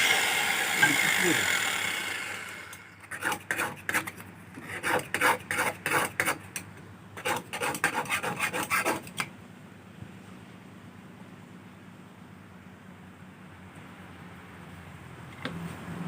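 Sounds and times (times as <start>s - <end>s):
hand tool rasping on wood: 0.0s - 6.4s, 7.2s - 9.2s.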